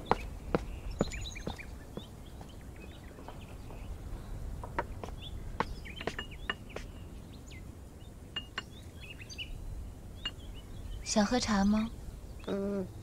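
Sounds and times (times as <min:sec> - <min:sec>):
small birds chirping: 0:00.0 - 0:13.0
sharp knocks: 0:04.6 - 0:06.9.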